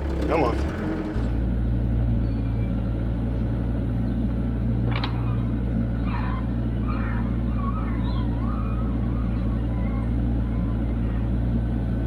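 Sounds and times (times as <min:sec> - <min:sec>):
faint squeaks: 0:00.0 - 0:01.4
excavator diesel engine running: 0:00.0 - 0:01.6.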